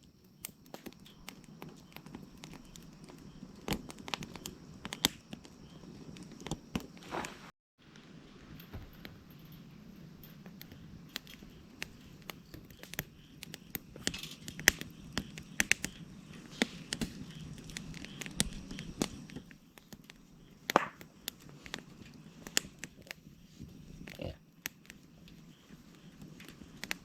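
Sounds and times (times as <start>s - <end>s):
dry wood cracking and snapping: 0.4s - 7.0s, 10.3s - 23.2s.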